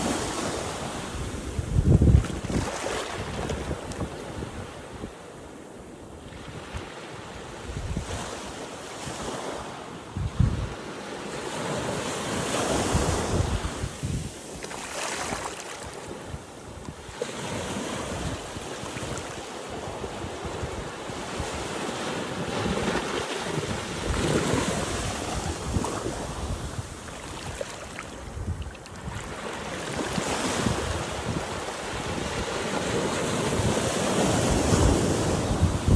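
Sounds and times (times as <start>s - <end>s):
wind buffeting microphone: 0.9s - 5.2s, 10.2s - 10.8s, 12.7s - 14.4s, 22.4s - 35.9s.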